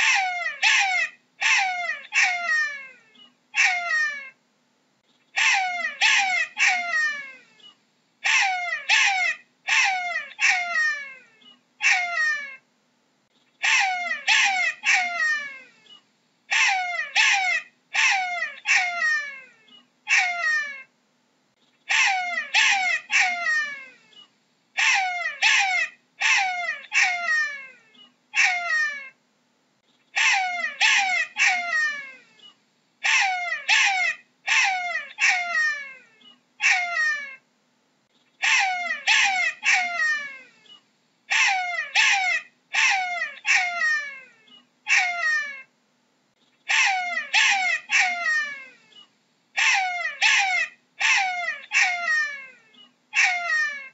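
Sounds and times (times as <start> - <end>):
jackal yelping: 0.0 - 4.4, 5.3 - 7.4, 8.2 - 12.6, 13.6 - 20.9, 21.9 - 24.2, 24.8 - 29.2, 30.1 - 37.4, 38.4 - 45.7, 46.6 - 49.0, 49.6 - 53.9.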